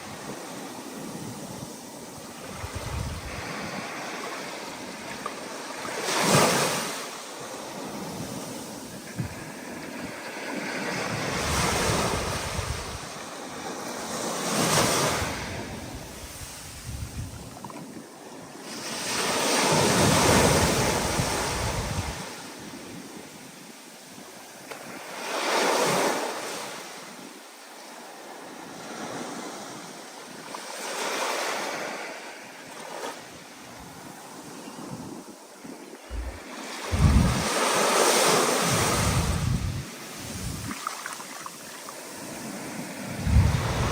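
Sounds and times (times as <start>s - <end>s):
steady wind: 0.0s - 23.6s, 31.8s - 43.9s
waves surging and breaking: 0.0s - 43.9s
wind rumble on microphone: 1.0s - 4.1s, 7.9s - 13.3s, 14.5s - 18.0s, 19.7s - 22.5s, 33.7s - 41.4s, 42.4s - 43.9s.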